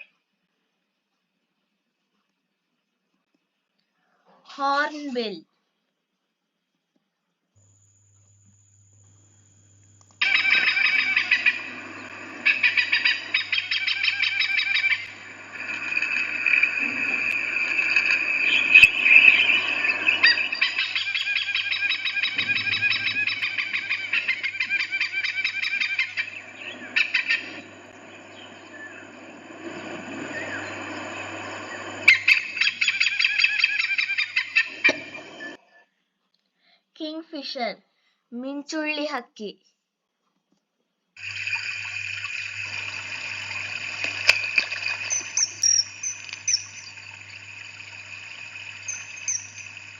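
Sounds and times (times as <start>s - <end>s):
hornbill calling: 10.2s - 35.6s, 41.3s - 49.9s.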